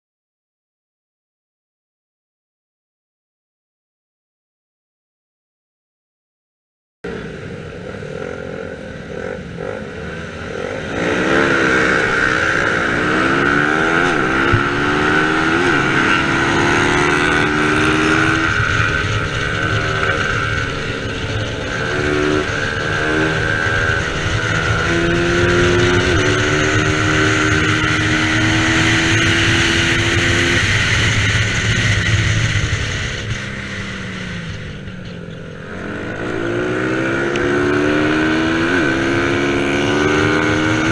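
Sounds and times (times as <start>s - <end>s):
racing motorcycle engine revving: 7.1s - 40.9s.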